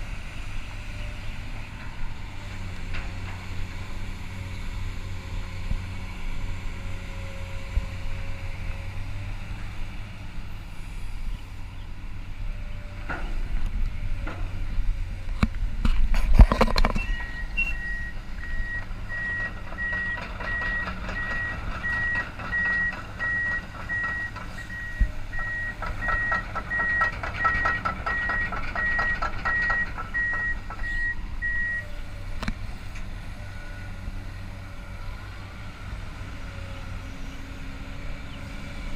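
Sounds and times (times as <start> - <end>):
excavator diesel engine running: 0.0 - 38.9
travel alarm high beeps: 17.0 - 31.8
loud metal clanks: 19.4 - 31.1.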